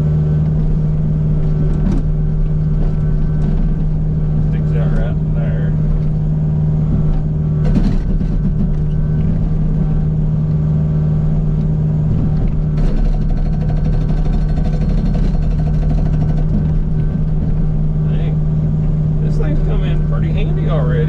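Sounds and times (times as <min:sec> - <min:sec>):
diesel engine running: 0:00.0 - 0:21.0
hydraulic breaker hammer rattling: 0:12.4 - 0:17.6.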